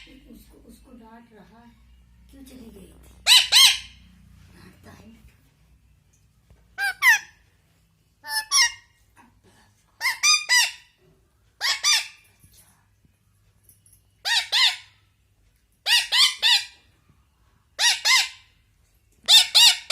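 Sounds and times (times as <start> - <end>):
parrot squawking harshly: 3.2 - 4.0, 6.8 - 7.4, 8.2 - 9.0, 10.0 - 10.9, 11.6 - 12.2, 14.2 - 15.0, 15.8 - 16.8, 17.8 - 18.5, 19.3 - 19.9.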